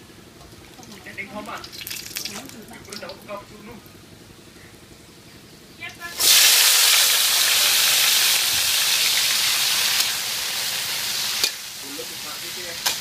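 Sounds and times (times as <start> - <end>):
wet greens sizzling in wok: 0.0 - 3.3, 6.1 - 13.0.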